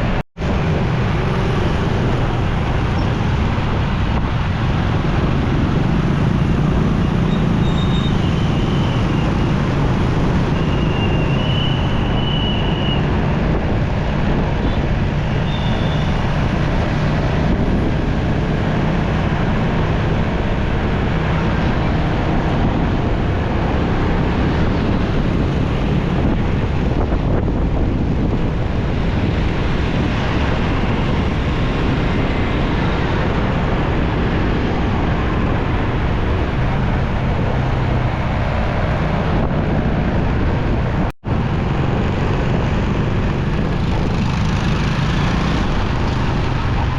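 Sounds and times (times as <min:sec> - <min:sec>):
motorcycle engine and road noise: 0:00.0 - 0:46.9.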